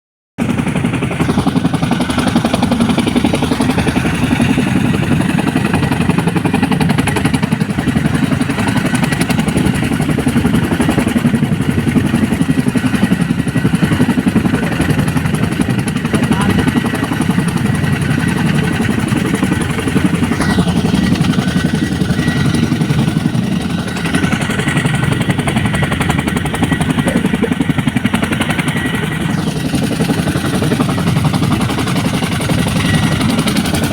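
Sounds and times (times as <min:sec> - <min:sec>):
helicopter rotor beat: 0:00.4 - 0:33.9.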